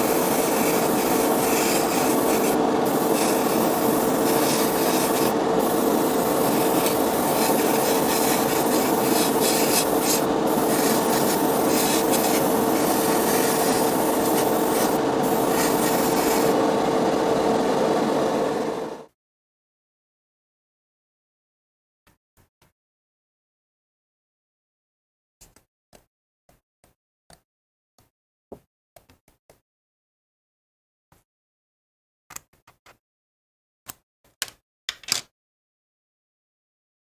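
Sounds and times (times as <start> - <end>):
steady hum: 0.0 - 19.1
abrasive rubbing: 0.1 - 16.6.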